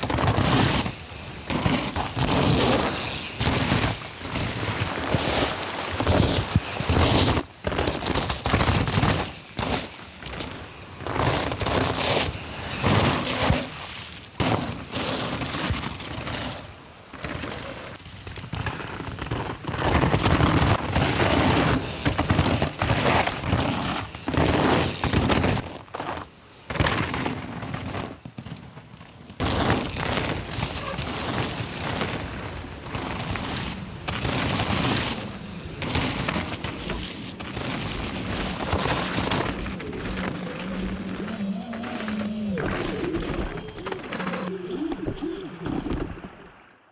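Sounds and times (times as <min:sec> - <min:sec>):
bike tyres tearing through mud: 0:00.0 - 0:44.5
bike thumping and clattering: 0:17.2 - 0:40.0.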